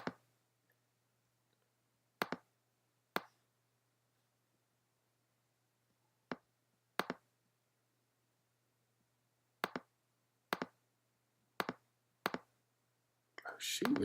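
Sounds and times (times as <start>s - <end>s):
faint steady hum: 0.0s - 14.0s
computer mouse clicks: 9.6s - 9.9s, 11.6s - 12.5s.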